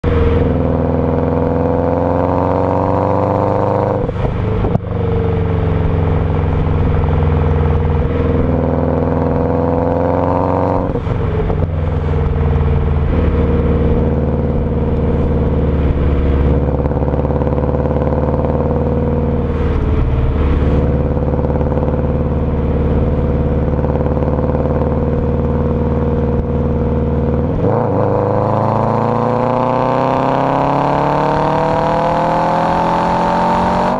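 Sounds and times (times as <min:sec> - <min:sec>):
car engine through loud exhaust: 0:00.0 - 0:33.9.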